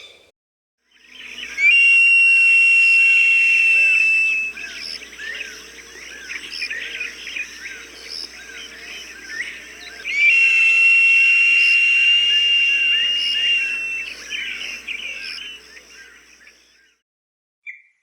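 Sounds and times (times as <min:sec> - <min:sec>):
long high whistled note: 0:01.5 - 0:04.6, 0:10.0 - 0:14.7
small birds chirping: 0:03.5 - 0:16.7.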